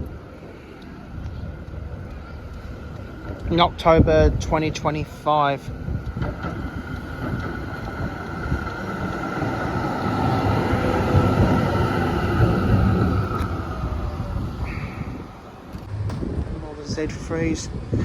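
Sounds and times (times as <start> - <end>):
tram rumbling on tracks: 0.0 - 18.0
high whine: 12.4 - 18.0.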